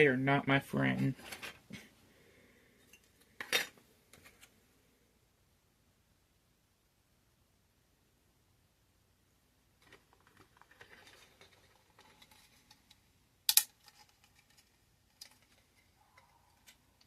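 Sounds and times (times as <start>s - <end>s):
plastic model parts clicking: 9.8s - 17.0s.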